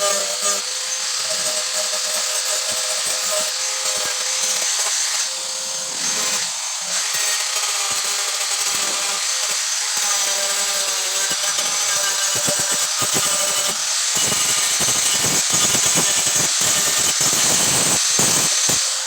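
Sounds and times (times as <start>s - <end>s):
electric power tool whining: 0.0s - 19.0s.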